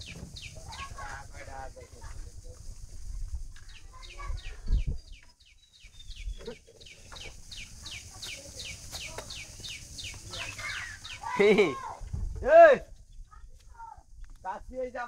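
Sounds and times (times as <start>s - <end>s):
small bird peeping: 0.0s - 1.2s, 3.6s - 11.5s.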